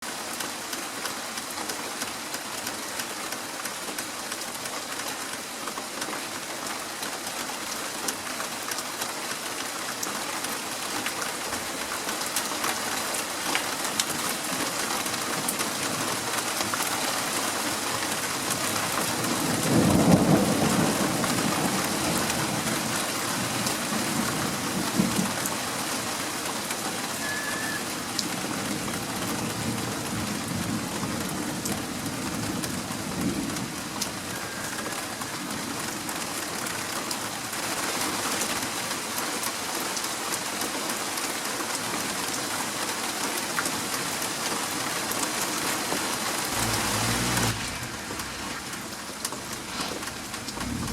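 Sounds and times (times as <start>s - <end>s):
rain pattering: 0.0s - 50.9s
thunder rumble: 46.5s - 50.9s.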